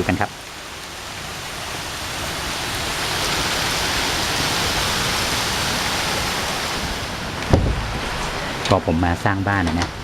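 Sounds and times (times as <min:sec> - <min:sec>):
heavy rain falling: 0:00.0 - 0:10.0
sharp knock: 0:07.5 - 0:08.2.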